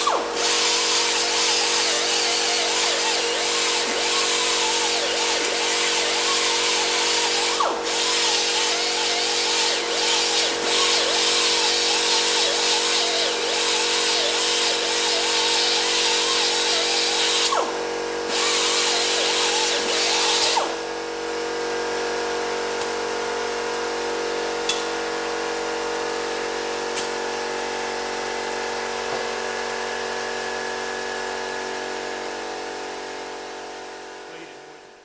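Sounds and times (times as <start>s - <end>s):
angle grinder grinding metal: 0.0s - 17.6s, 18.3s - 20.8s.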